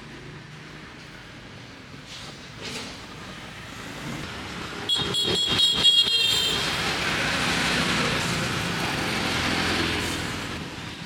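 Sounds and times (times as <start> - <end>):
street traffic: 0.0 - 11.0
motorbike passing close by: 6.5 - 10.9.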